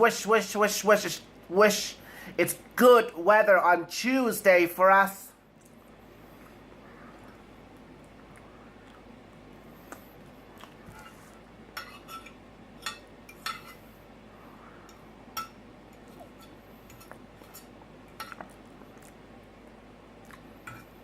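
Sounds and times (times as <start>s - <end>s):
cutlery clinking on plate: 11.8s - 13.8s.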